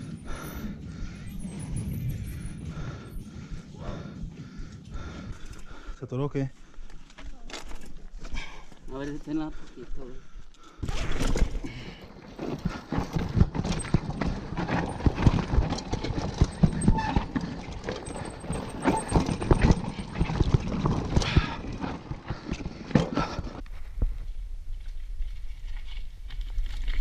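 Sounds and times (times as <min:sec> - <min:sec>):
mountain bike rattling over rocks: 0:00.0 - 0:03.7, 0:06.8 - 0:09.2, 0:10.8 - 0:23.6.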